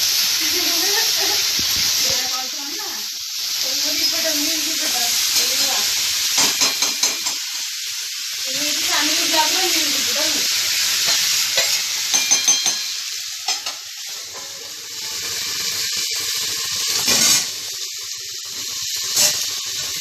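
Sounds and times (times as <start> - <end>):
food sizzling in hot oil: 0.0 - 20.0
metallic utensil clinks: 11.1 - 13.7.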